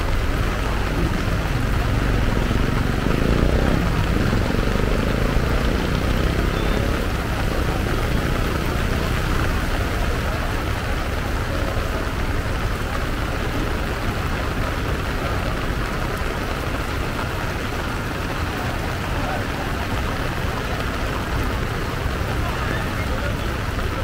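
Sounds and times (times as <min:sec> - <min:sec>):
heavy rain on road and umbrella: 0:00.0 - 0:24.0.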